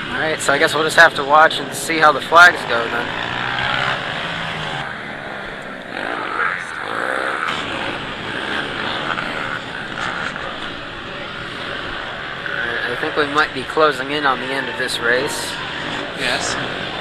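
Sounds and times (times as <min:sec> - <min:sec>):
dirt bike engines racing: 0:00.0 - 0:17.0.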